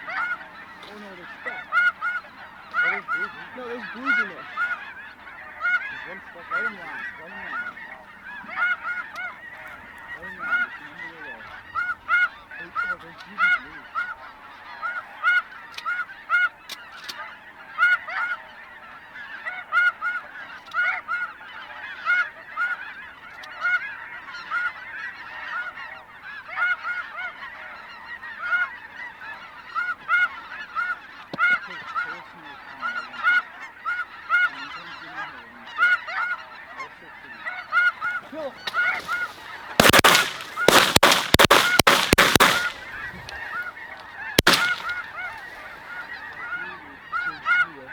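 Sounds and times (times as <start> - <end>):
geese calling: 0.0 - 47.9
shotgun blasts: 38.7 - 43.6, 44.4 - 45.1.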